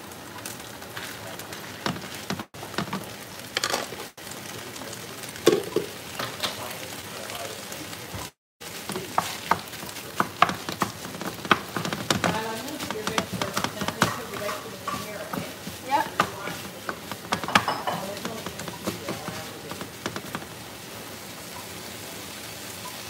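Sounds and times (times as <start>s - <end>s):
beef sizzling in a pan: 0.0s - 23.0s
spatula scraping and knocking pan: 1.7s - 4.0s, 8.6s - 20.7s.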